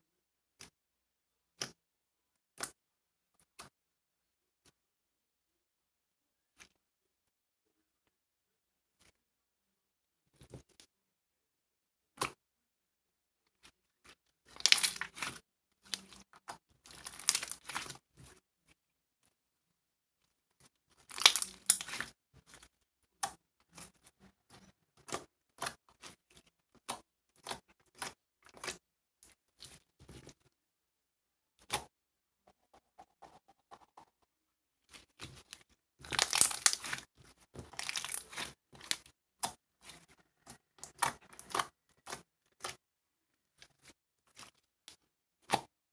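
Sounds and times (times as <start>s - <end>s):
crinkling and tearing: 14.5s - 16.3s, 16.9s - 18.0s, 21.0s - 22.2s, 34.9s - 39.1s.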